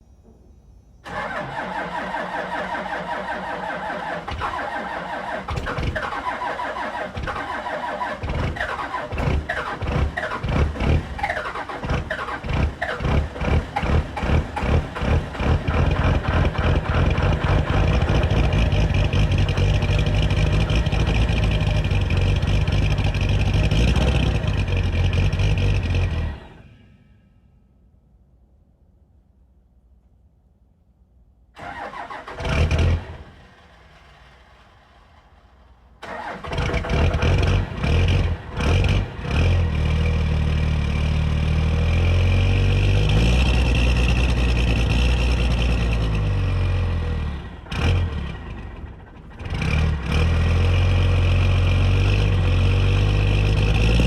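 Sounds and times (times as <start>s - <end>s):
diesel engine running: 1.0s - 27.0s, 31.6s - 54.0s
diesel engine starter cranking: 1.0s - 27.0s, 31.6s - 39.3s.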